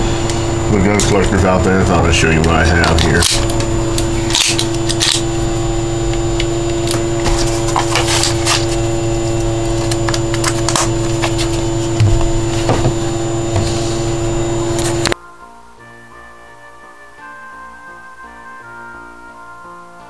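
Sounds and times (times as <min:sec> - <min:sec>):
loud steady hum: 0:00.0 - 0:15.2.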